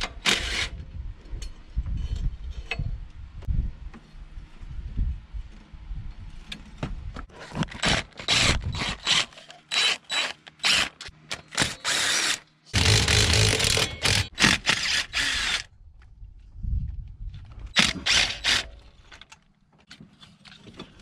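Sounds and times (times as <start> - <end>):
handheld power tool bursts: 7.8 - 15.7.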